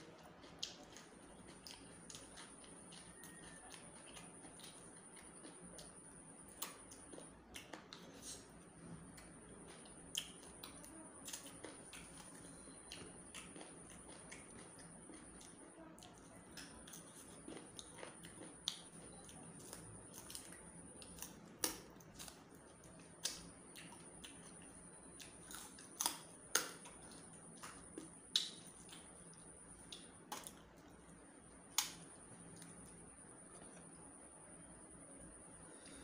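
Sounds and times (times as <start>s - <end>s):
person chewing food: 0.0s - 34.4s
faint high-pitched whine: 0.0s - 36.0s.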